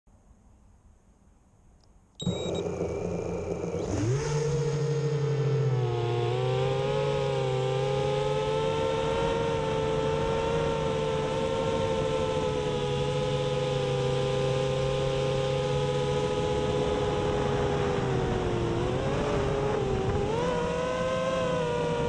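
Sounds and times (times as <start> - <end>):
drone motors whining: 2.2 - 16.8.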